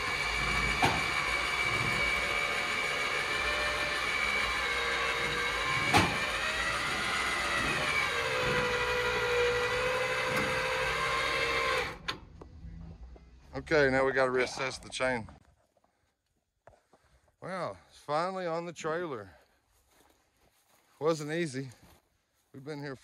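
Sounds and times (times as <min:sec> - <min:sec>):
electric winch motor whining: 0:00.0 - 0:12.2.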